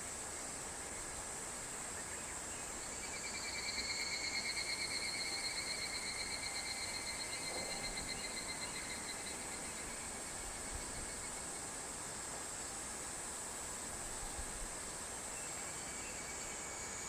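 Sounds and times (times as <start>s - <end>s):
high hiss of insects: 0.0s - 17.0s
cicada pulsing trill: 2.8s - 11.4s.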